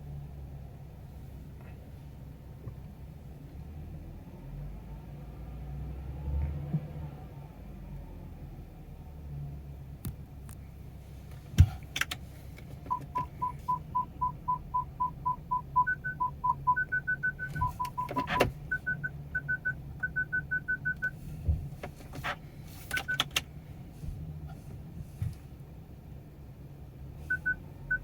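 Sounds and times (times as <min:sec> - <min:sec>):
car engine idling: 0:10.6 - 0:28.0
short electronic beeps: 0:12.9 - 0:21.2, 0:27.3 - 0:28.0.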